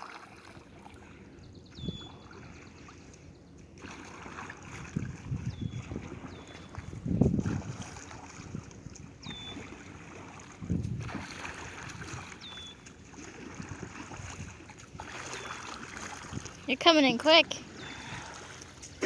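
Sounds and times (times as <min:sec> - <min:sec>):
oar strokes sloshing water: 0:00.0 - 0:19.0
wind on microphone: 0:01.6 - 0:02.5, 0:04.6 - 0:12.5, 0:13.2 - 0:16.7.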